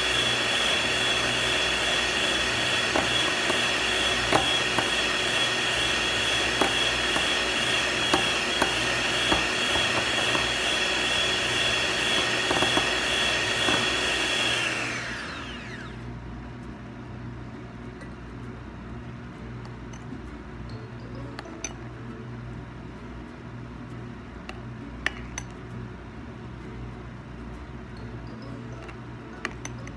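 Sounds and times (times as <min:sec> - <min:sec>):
electric hand mixer whirring: 0:00.0 - 0:16.0.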